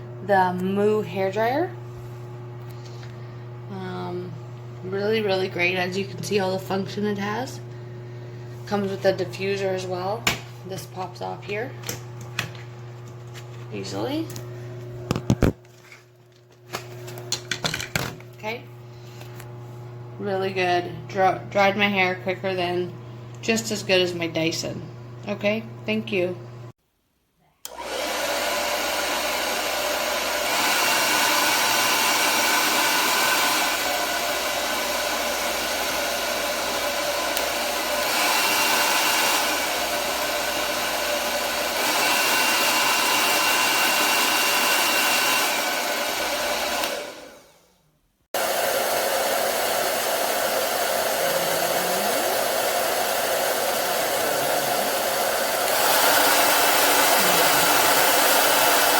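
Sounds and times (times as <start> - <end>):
hair dryer blowing: 0.0 - 15.6, 27.7 - 47.6, 48.4 - 58.9.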